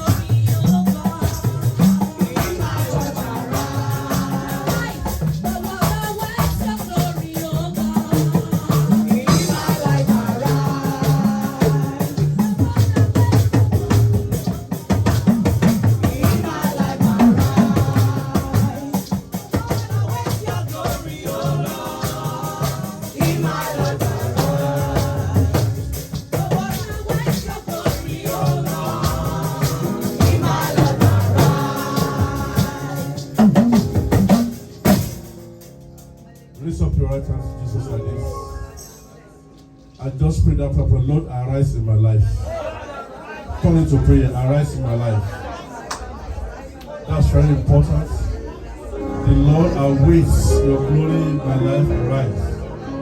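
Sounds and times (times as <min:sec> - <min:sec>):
drums: 0:00.0 - 0:37.5
shaker percussion: 0:00.0 - 0:37.8
gospel music: 0:00.0 - 0:53.0.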